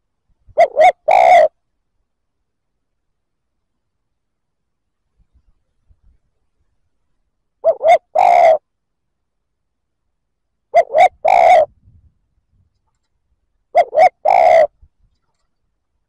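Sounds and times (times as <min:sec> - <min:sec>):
dove cooing: 0:00.6 - 0:01.6, 0:07.6 - 0:08.6, 0:10.7 - 0:11.8, 0:13.7 - 0:14.8.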